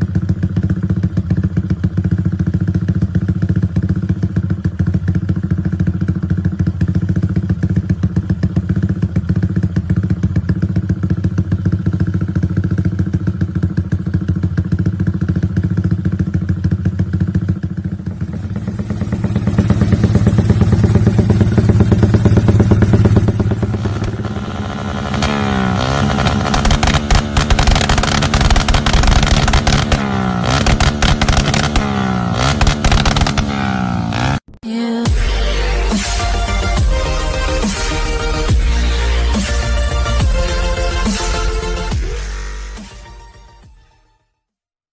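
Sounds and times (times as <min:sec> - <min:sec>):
motorcycle engine revving: 0:00.0 - 0:43.2
exhaust cracks: 0:17.7 - 0:41.3.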